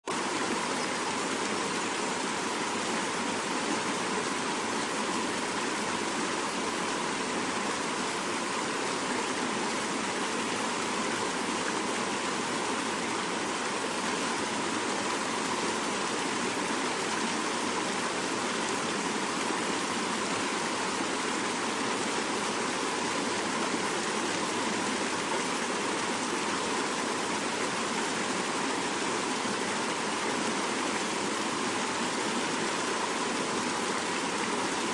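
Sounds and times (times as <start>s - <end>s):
river rushing over rocks: 0.1s - 34.9s.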